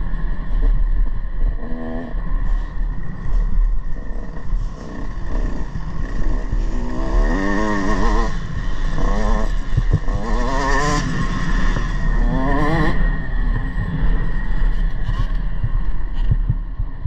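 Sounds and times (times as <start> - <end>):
motocross bike engines revving: 1.4 - 15.9.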